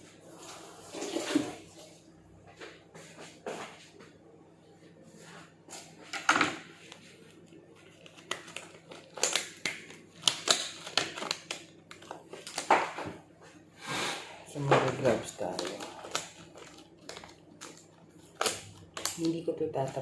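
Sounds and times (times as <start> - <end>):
plastic crinkling: 5.9 - 13.2, 14.5 - 20.0.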